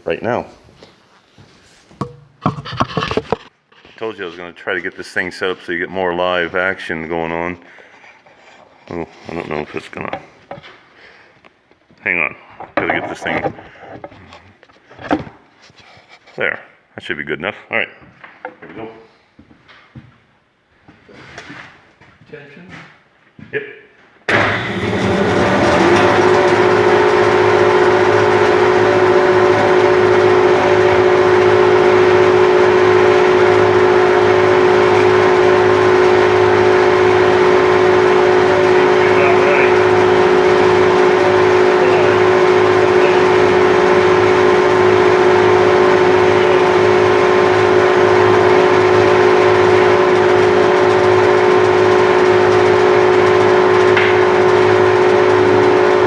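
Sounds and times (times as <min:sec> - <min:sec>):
bandsaw cutting wood: 0:24.3 - 0:56.0.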